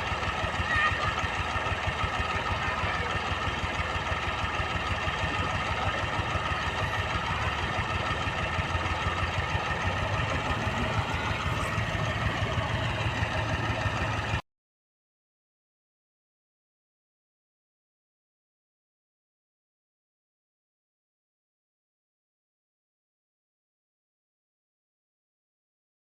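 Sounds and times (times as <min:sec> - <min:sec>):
diesel engine idling: 0:00.0 - 0:14.4.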